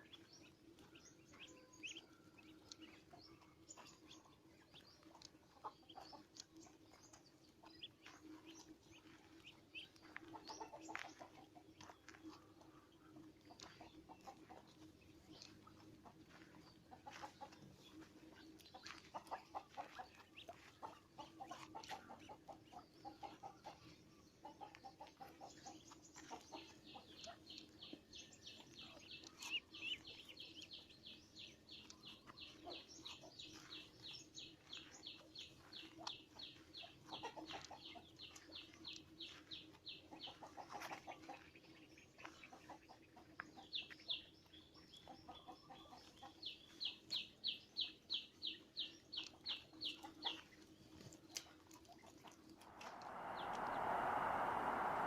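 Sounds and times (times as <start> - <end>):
birds clucking: 0.0 - 28.0, 31.8 - 44.1
birds chirping high: 0.0 - 55.0.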